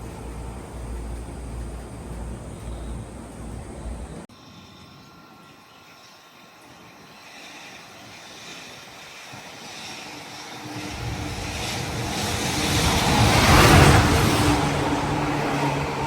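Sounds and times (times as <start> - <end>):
train approaching rumble: 0.0 - 16.0
steady tone: 10.8 - 16.0.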